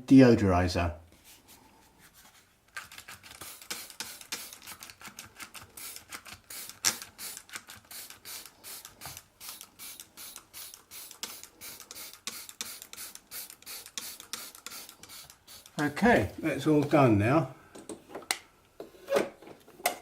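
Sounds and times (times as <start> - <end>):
spray can short hisses: 3.4 - 4.8, 5.8 - 16.0.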